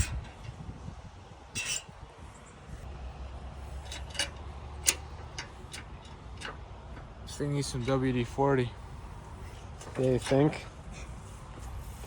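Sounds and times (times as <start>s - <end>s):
clicks and knocks of farm implement: 0.0s - 0.6s, 3.8s - 7.1s.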